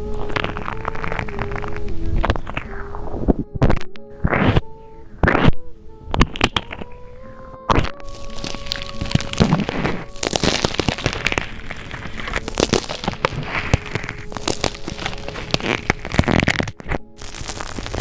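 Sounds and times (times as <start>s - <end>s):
slime crackling and popping: 0.0s - 4.6s, 5.2s - 6.9s, 7.7s - 18.0s.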